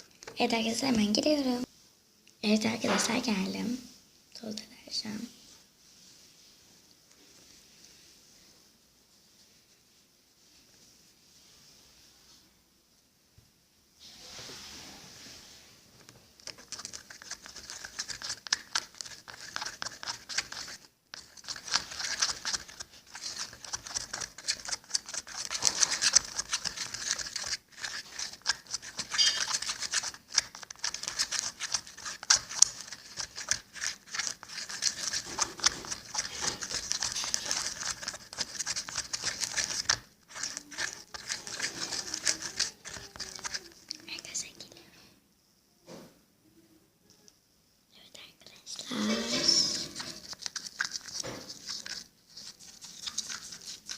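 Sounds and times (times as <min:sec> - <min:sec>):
sticky slime crackling: 0:16.4 - 0:44.2, 0:50.0 - 0:53.9.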